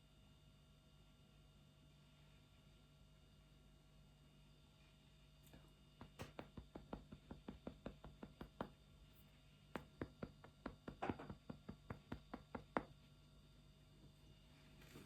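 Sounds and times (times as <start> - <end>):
quick tapping on hard surface: 6.0 - 8.8, 9.7 - 12.9.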